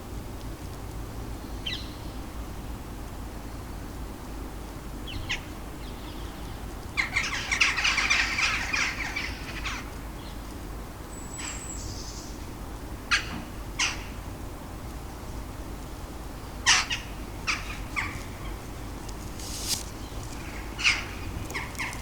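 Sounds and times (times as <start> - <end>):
bird harsh rattling call: 19.4 - 22.0.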